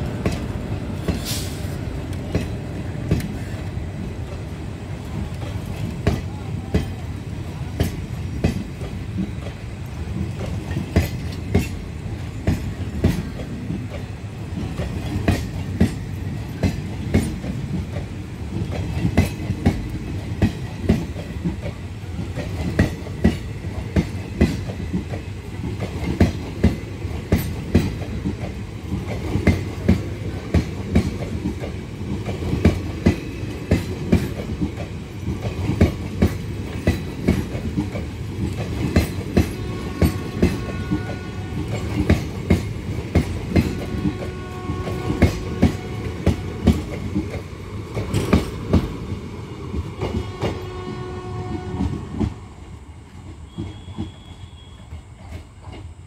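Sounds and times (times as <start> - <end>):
train wheels clacking over rail joints: 0.0 - 52.4.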